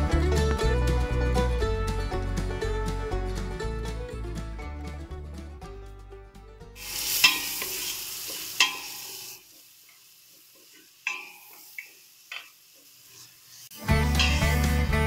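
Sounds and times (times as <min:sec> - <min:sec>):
background music: 0:00.0 - 0:06.9, 0:13.7 - 0:15.0
garlic and onions sizzling: 0:06.8 - 0:15.0
spoon tapping: 0:07.2 - 0:07.7, 0:08.6 - 0:09.0, 0:11.0 - 0:12.5.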